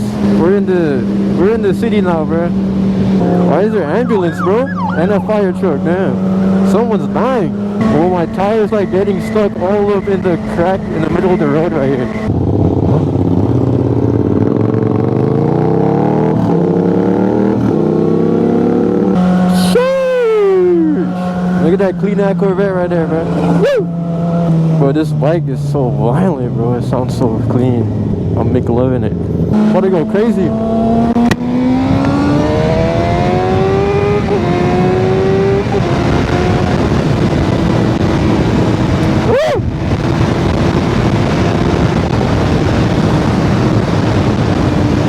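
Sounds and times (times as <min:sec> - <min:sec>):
motorcycle engine accelerating: 0:00.0 - 0:45.0
wind rush: 0:30.5 - 0:45.0.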